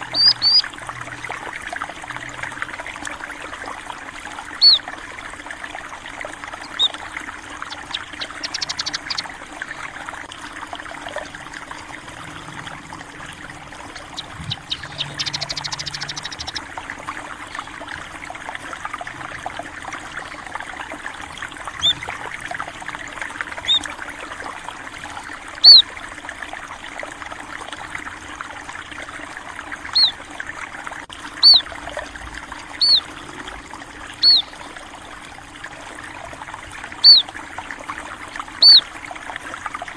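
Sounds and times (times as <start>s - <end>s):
rapid chattering bird trills: 0.0s - 0.7s, 4.6s - 4.8s, 6.6s - 7.0s, 7.6s - 9.6s, 13.6s - 16.7s, 21.8s - 22.2s, 23.6s - 23.9s, 25.6s - 25.8s, 29.9s - 30.2s, 31.4s - 31.7s, 32.8s - 33.2s, 34.2s - 34.6s, 37.0s - 37.3s, 38.6s - 38.8s
small stream trickling: 0.0s - 39.9s
short high bird chirps: 0.1s - 0.7s, 6.7s - 7.0s, 14.1s - 16.6s, 21.8s - 22.0s, 29.9s - 30.2s, 31.4s - 31.6s, 32.8s - 33.1s, 34.2s - 34.5s, 38.6s - 38.8s.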